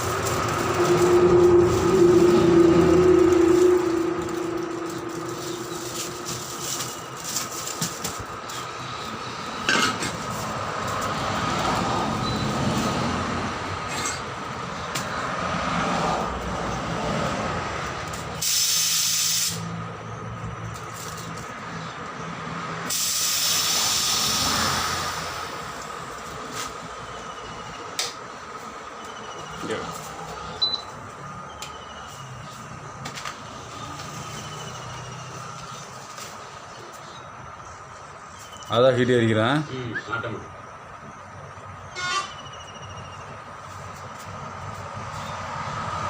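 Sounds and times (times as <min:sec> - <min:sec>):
machine noise: 0:00.0 - 0:13.0
air hissing: 0:18.3 - 0:19.8, 0:22.8 - 0:26.0.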